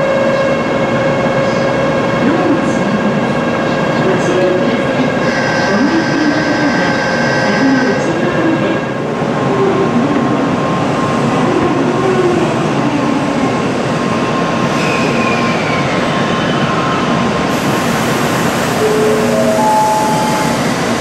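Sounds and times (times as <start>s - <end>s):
train whirring hum: 16.6s - 21.0s.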